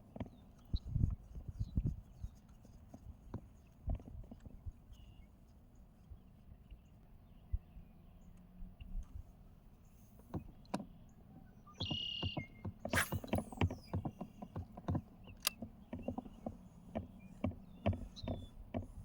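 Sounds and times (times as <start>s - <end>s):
gear knocking and clicking: 11.8s - 19.0s
short whirring zip: 12.8s - 14.0s.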